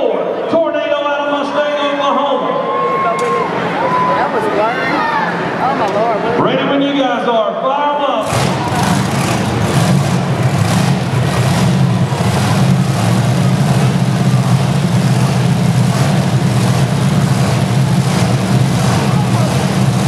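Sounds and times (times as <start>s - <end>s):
monster truck engines racing: 7.8s - 20.0s.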